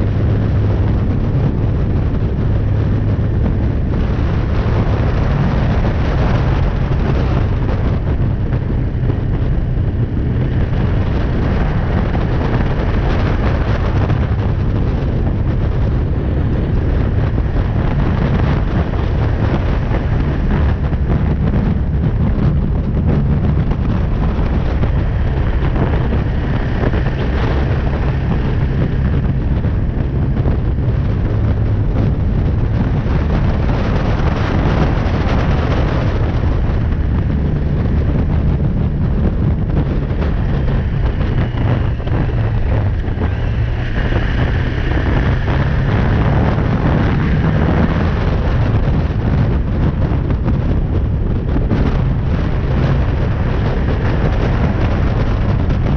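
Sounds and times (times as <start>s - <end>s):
motorcycle engine running: 0.0s - 55.9s
wind on microphone: 0.0s - 55.9s.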